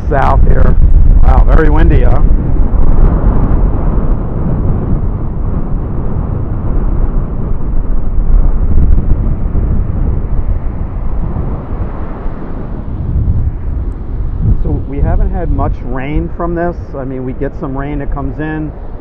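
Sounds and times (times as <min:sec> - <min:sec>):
wind gusting across microphone: 0:00.0 - 0:19.0.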